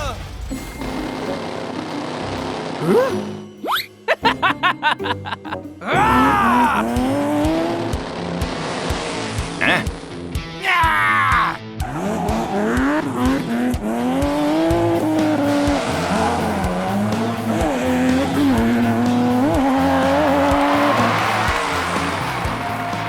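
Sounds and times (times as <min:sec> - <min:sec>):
car engine revving: 0:06.7 - 0:10.4, 0:11.7 - 0:23.0
background music with steady beat: 0:06.7 - 0:23.0.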